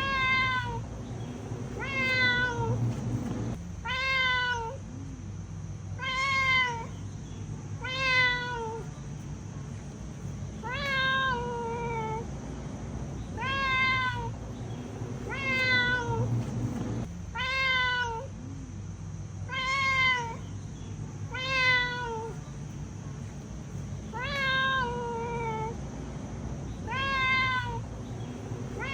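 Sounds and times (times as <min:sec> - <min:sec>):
cat meowing: 0:00.0 - 0:00.8, 0:01.7 - 0:02.9, 0:03.8 - 0:04.8, 0:06.0 - 0:07.0, 0:07.8 - 0:08.9, 0:10.6 - 0:12.3, 0:13.3 - 0:14.4, 0:15.2 - 0:16.4, 0:17.3 - 0:18.3, 0:19.5 - 0:20.5, 0:21.3 - 0:22.4, 0:24.1 - 0:25.8, 0:26.8 - 0:28.9.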